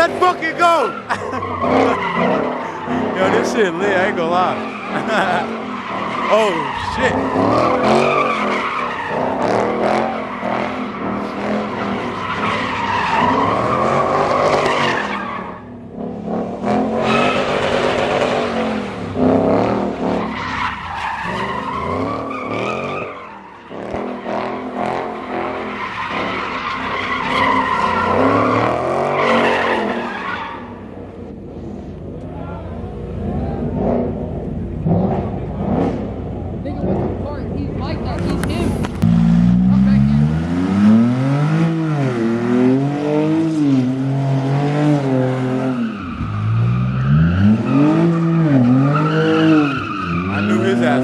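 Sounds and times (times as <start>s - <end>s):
tyres squealing: 0.0s - 9.2s
car engine revving hard: 0.0s - 30.8s, 33.2s - 51.0s.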